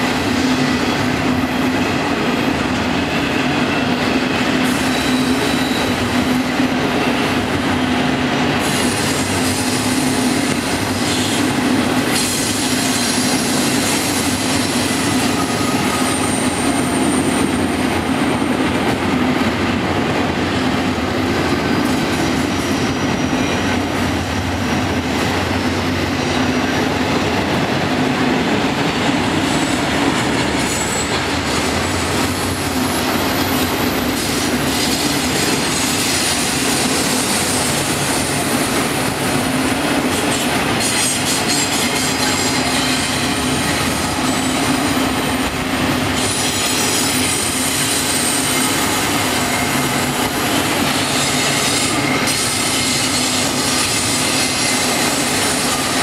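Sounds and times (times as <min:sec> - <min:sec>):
freight train wheels rumbling: 0:00.0 - 0:56.0
high-pitched wheel squeal: 0:04.7 - 0:06.0.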